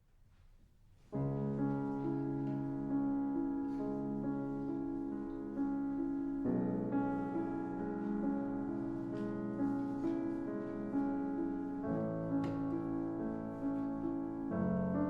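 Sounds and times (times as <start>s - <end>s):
calm piano chords: 0.0s - 15.0s.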